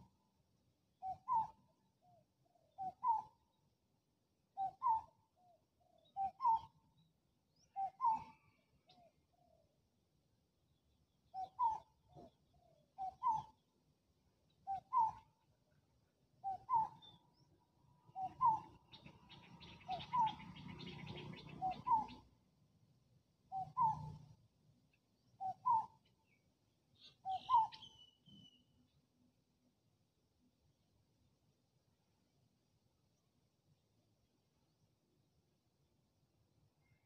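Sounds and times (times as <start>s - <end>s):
higher bird chirp: 27.0s - 28.7s.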